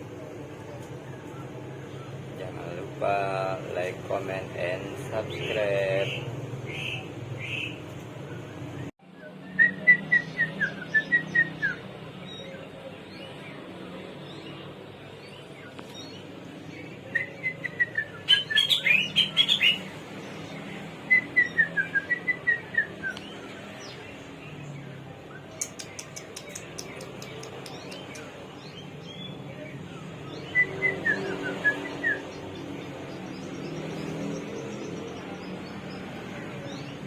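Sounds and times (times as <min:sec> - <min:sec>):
bird singing whistled notes: 0:06.1 - 0:13.5, 0:17.0 - 0:19.8, 0:21.1 - 0:24.0, 0:24.6 - 0:35.4.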